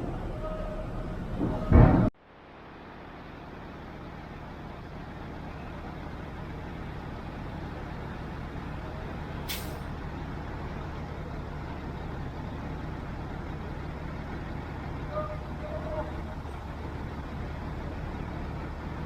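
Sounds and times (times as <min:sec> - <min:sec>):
truck diesel engine running: 0:00.0 - 0:01.8, 0:03.0 - 0:19.0
air brake hiss: 0:09.5 - 0:09.9.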